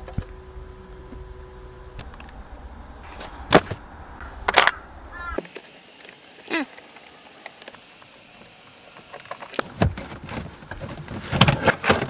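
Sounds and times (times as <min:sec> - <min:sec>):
dull thuds: 0:03.0 - 0:05.4.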